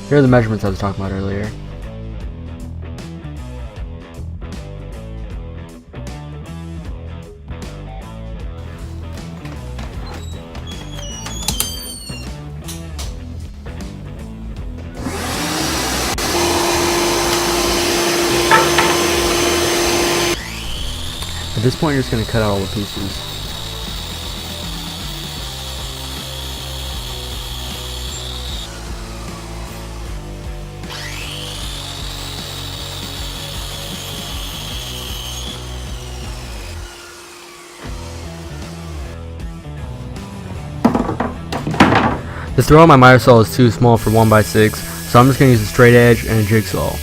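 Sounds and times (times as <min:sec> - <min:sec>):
background music with bass: 0:00.0 - 0:36.9, 0:37.9 - 0:47.0
power tool motor whining: 0:09.7 - 0:12.3, 0:15.0 - 0:39.2, 0:43.9 - 0:47.0
electric saw cutting wood: 0:14.9 - 0:41.6, 0:43.8 - 0:47.0.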